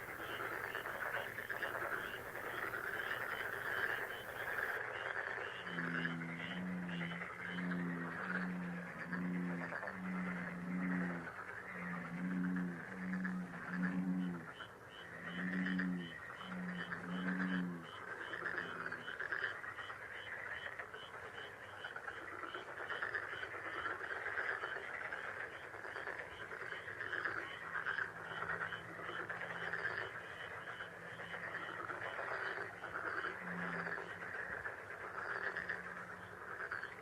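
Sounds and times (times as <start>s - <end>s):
chorus of calling animals: 0.0s - 7.8s.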